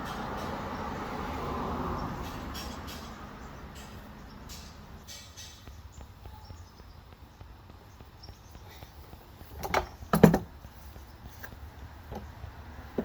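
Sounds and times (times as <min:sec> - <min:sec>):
knocks and clatter on workbench: 0:09.6 - 0:10.5.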